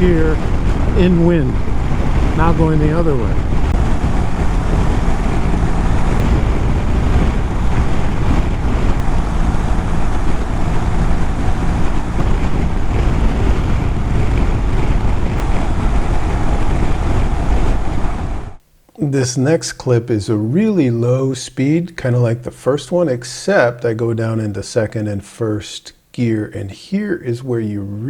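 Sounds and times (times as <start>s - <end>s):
motorcycle engine: 0.0s - 18.6s
road noise: 0.0s - 18.6s
wind rush and buffeting: 0.0s - 18.6s.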